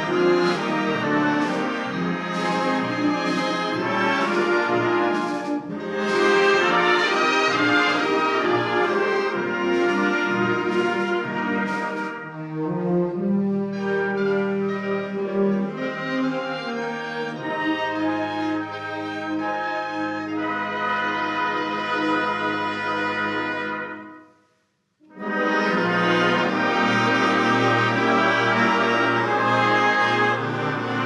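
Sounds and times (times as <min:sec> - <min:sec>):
concert band playing: 0:00.0 - 0:12.3.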